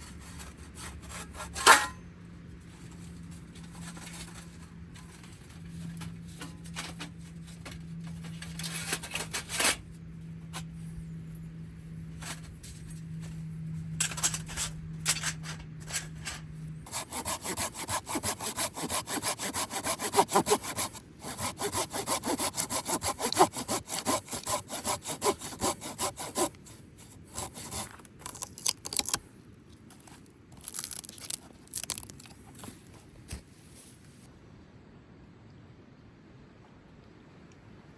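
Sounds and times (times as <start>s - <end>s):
low steady hum: 0.0s - 37.9s
hand saw cutting wood: 16.9s - 29.2s.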